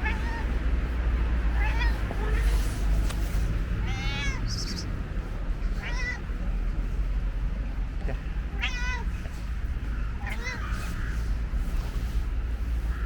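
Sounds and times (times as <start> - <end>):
cat meowing: 0.0 - 0.6, 1.5 - 2.7, 3.8 - 4.9, 5.7 - 6.3, 8.5 - 9.2, 10.2 - 11.2
steady low rumble: 0.0 - 13.0.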